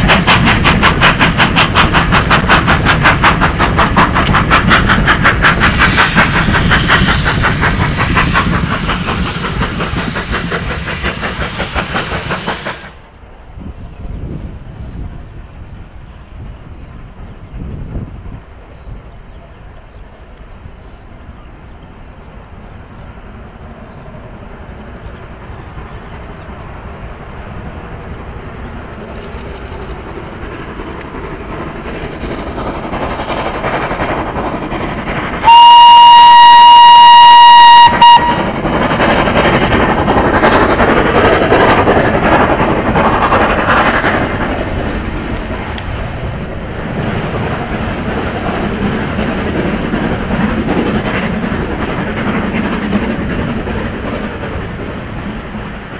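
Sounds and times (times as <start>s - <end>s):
steam train rumble and clatter: 0.0s - 55.9s
steam train whistle: 35.4s - 38.5s.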